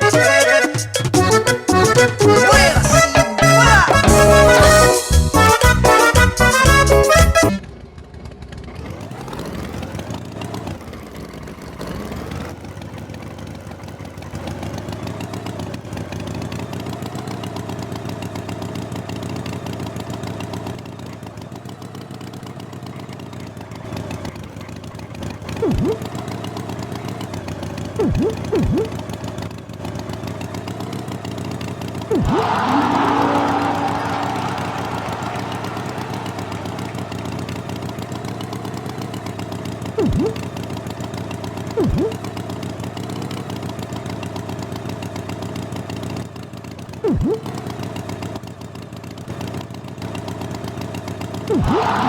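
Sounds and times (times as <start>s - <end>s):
music: 0.0s - 7.6s
tractor engine running: 0.0s - 52.0s.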